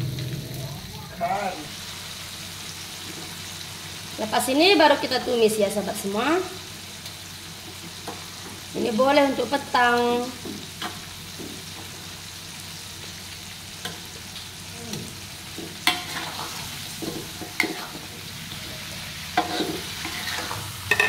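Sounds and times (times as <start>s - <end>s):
fish sizzling in a wok: 0.0s - 21.0s
metal spatula scraping a wok: 15.7s - 21.0s.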